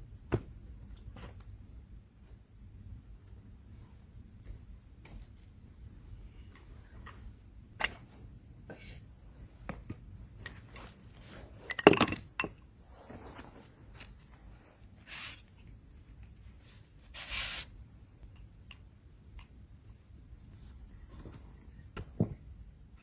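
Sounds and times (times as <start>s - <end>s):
brushing scrapes: 12.9s - 15.6s, 16.4s - 17.7s.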